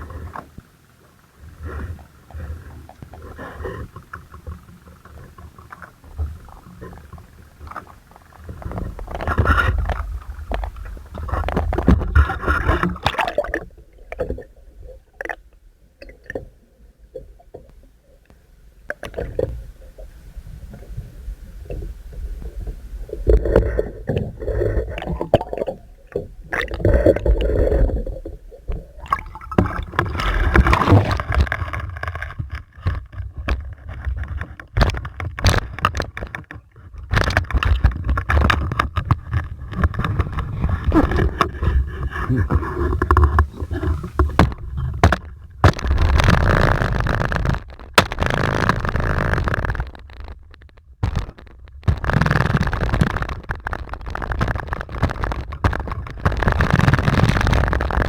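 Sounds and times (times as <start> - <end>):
knocks and scrapes: 3.1 - 13.2, 23.2 - 58.0
water sloshing around boat: 19.0 - 58.0.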